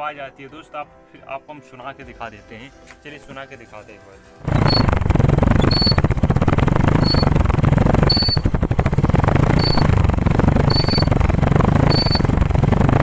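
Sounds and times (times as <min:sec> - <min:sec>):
drum brake squeaking: 0:04.4 - 0:13.0
motorcycle engine running: 0:04.4 - 0:13.0.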